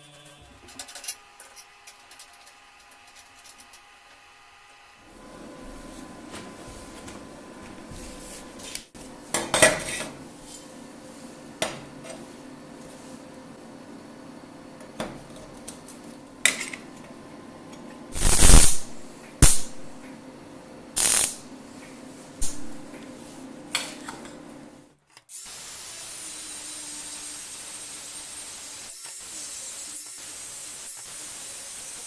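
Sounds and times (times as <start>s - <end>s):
steady hiss: 18.2s - 20.0s, 21.0s - 21.5s, 25.4s - 32.0s.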